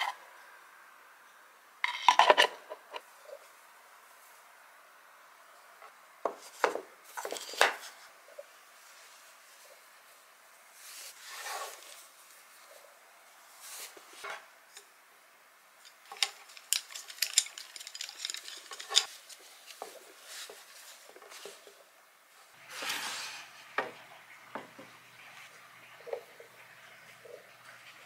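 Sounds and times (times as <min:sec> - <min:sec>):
cloth rustling: 0:16.1 - 0:21.9.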